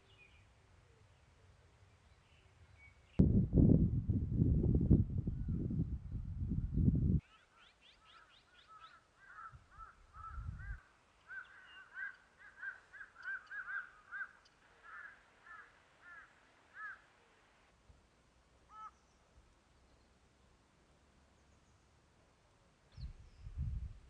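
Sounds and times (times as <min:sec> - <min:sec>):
crow-like bird calling: 0:07.2 - 0:17.1, 0:18.7 - 0:19.0.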